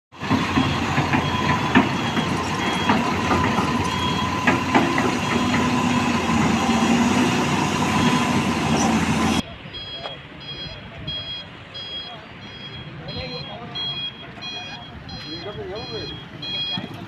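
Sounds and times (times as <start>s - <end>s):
construction machinery engine hum: 0.1s - 17.0s
metallic knocks and clanks: 0.2s - 6.6s.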